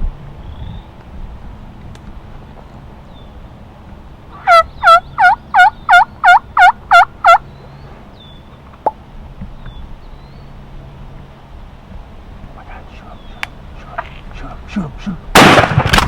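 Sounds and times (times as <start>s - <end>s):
turkey yelps: 4.3s - 7.5s, 12.6s - 15.3s.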